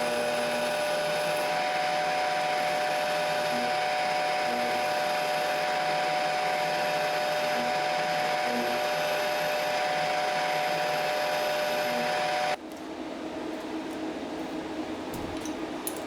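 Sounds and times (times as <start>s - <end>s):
power tool motor whining: 0.0s - 12.6s.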